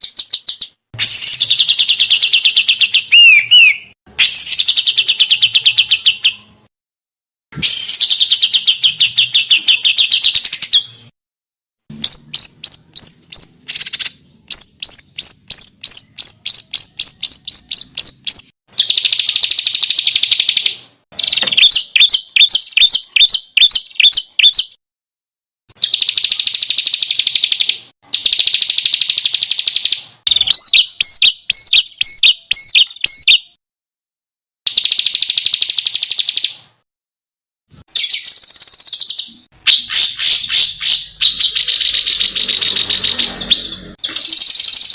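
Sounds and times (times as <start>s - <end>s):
songbird trills and chirps: 0.0s - 6.5s, 11.9s - 24.8s, 25.8s - 33.6s, 38.0s - 44.9s.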